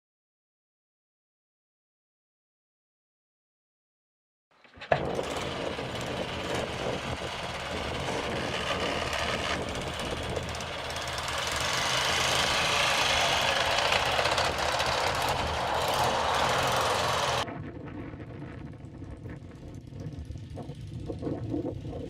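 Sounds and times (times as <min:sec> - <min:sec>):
motorcycle engine running: 0:04.8 - 0:17.4.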